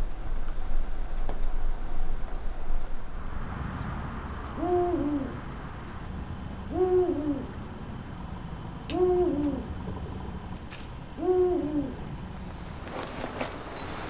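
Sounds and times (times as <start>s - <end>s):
owl hooting: 4.4s - 5.6s, 6.5s - 8.0s, 8.8s - 10.4s, 11.0s - 12.4s.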